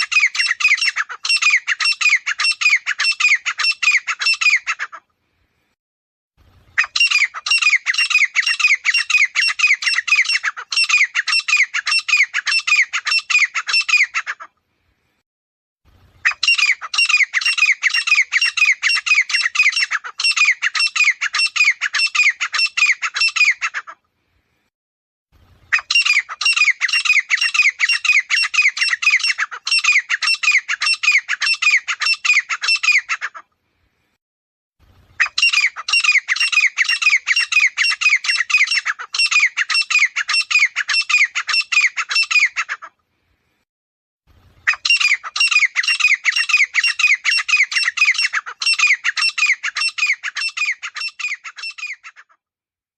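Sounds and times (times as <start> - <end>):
francolin calling rapid notes: 44.6 - 52.2.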